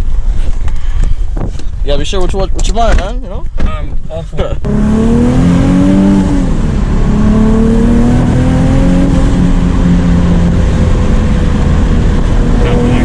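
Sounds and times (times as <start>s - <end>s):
car engine accelerating loudly: 4.5s - 13.0s.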